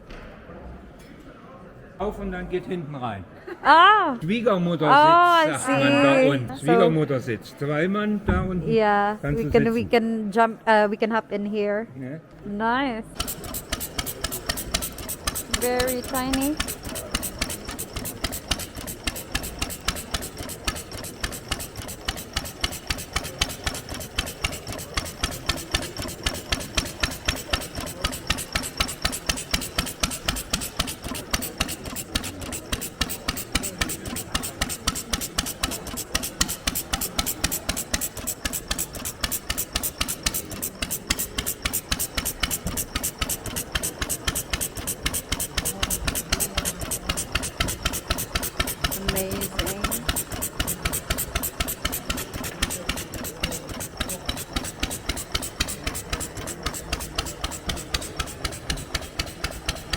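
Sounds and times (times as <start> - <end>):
old engine idling putt-putt: 13.2 - 59.9.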